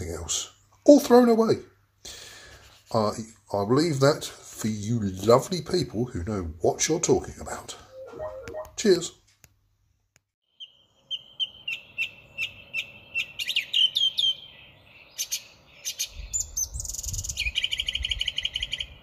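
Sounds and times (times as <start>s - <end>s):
songbirds chirping: 10.5s - 19.0s.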